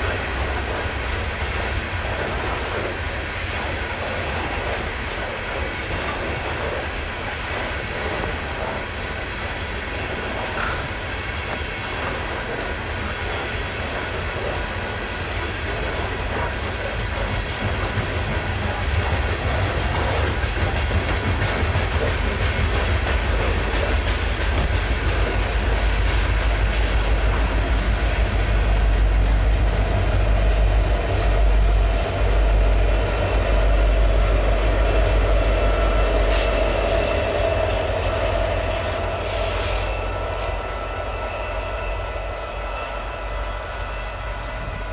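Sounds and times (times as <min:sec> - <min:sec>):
freight train rumble and clatter: 0:00.0 - 0:44.9
high wheel squeal: 0:12.4 - 0:44.9.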